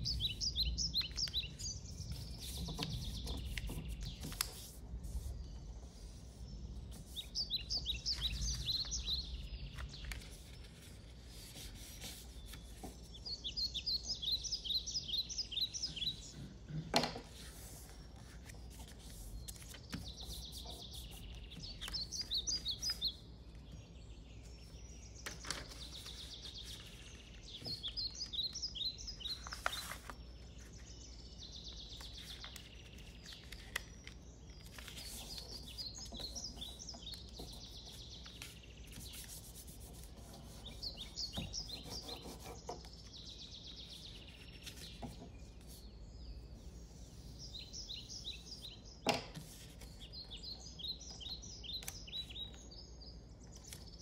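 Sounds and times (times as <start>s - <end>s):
bird singing rapid chirps: 0.0s - 4.4s, 7.0s - 10.5s, 12.3s - 16.4s, 19.3s - 49.1s, 49.9s - 54.0s
paper crinkling: 8.1s - 12.7s, 17.7s - 23.0s, 25.4s - 30.8s, 32.0s - 40.0s.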